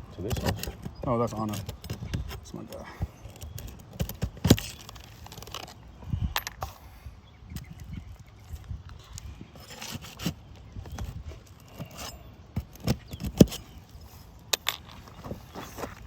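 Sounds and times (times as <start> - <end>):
footsteps on shingle roof: 9.6 - 16.0.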